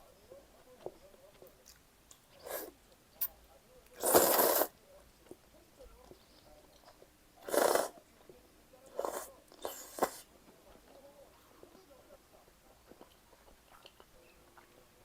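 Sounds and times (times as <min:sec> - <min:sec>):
faint chewing: 0:00.6 - 0:11.9, 0:12.7 - 0:14.9
biting or slurping: 0:04.0 - 0:04.7, 0:07.5 - 0:07.9.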